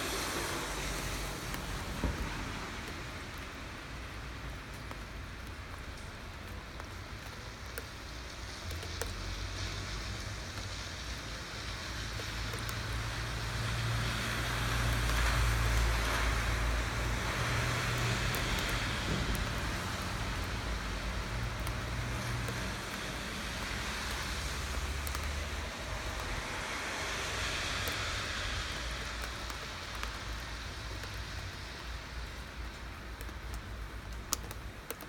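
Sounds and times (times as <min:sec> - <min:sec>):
rain falling: 0:00.0 - 0:35.0
drip ticks: 0:04.7 - 0:11.2, 0:12.1 - 0:13.2, 0:17.4 - 0:20.6, 0:21.4 - 0:23.1, 0:24.0 - 0:26.4, 0:27.8 - 0:28.0, 0:28.6 - 0:35.0.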